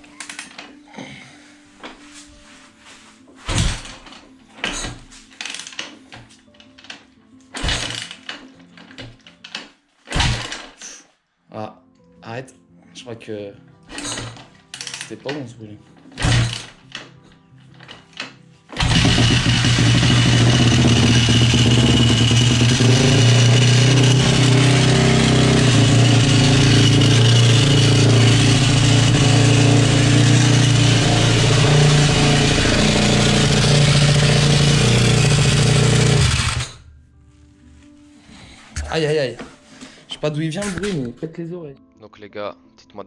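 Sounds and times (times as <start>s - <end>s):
abnormal mechanical noise: 3.5s - 10.8s, 13.9s - 36.9s
motorcycle engine running: 18.8s - 36.8s.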